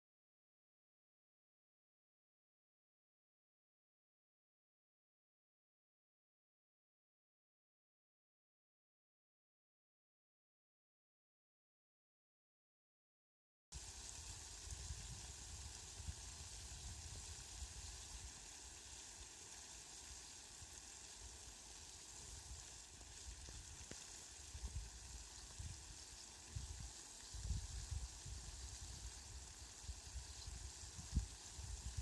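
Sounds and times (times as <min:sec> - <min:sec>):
outdoor hiss: 0:13.7 - 0:32.0.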